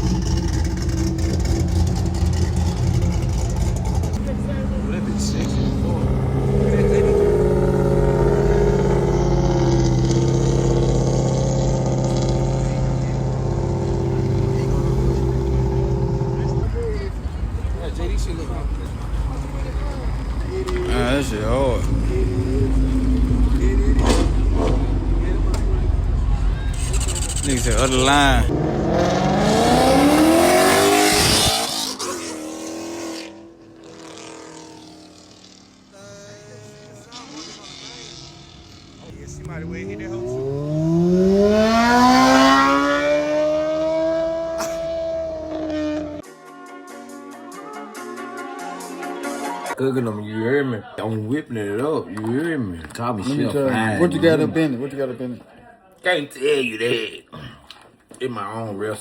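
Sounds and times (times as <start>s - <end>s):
car engine rumbling: 0.0s - 46.2s.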